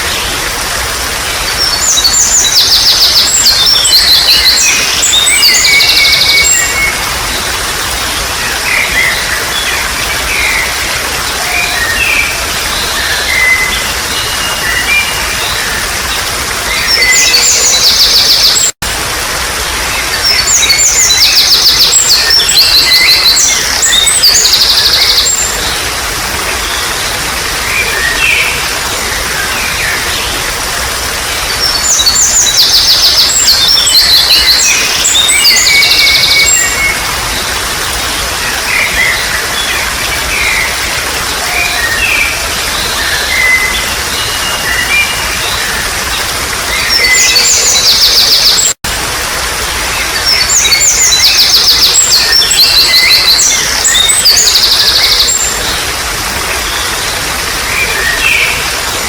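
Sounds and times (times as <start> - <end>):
songbirds singing: 0.0 - 18.8, 19.6 - 48.8, 49.6 - 59.0
trickling water: 0.0 - 59.0.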